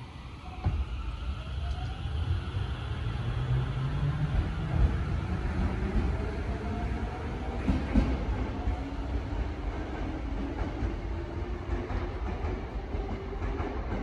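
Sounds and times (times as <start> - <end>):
train wheels rumbling: 0.5 - 14.0.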